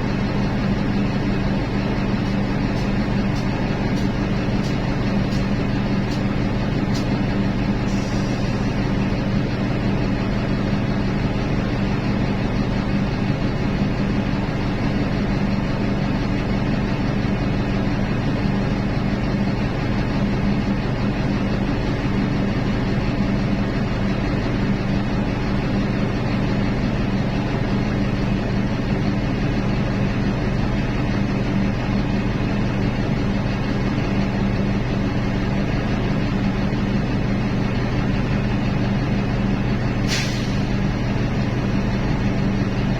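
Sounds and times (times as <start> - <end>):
diesel engines droning: 0.0 - 42.9.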